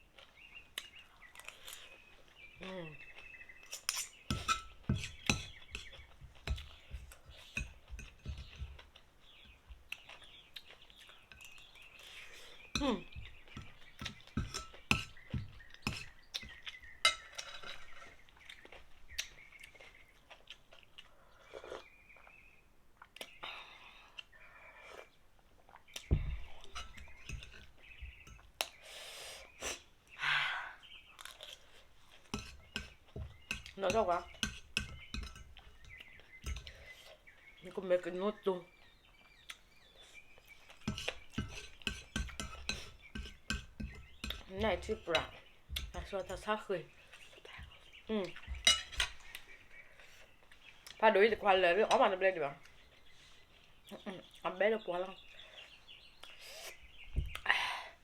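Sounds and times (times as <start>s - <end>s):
person chewing food: 0.0s - 28.8s, 31.1s - 37.5s, 38.9s - 44.5s
faint birds chirping: 0.0s - 58.0s
utensils clinking against dishes: 3.7s - 6.8s, 12.8s - 16.1s, 17.0s - 18.2s, 26.6s - 28.4s, 32.3s - 36.8s, 40.8s - 46.5s, 48.5s - 49.3s.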